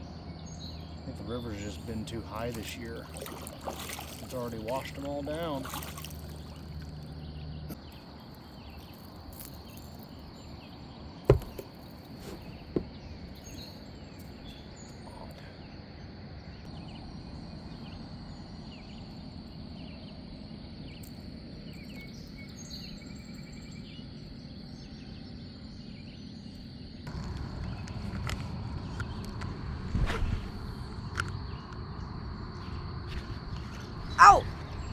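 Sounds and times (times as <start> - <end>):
sharp knocks: 11.3 - 12.9
faint bird chirps: 34.0 - 34.9.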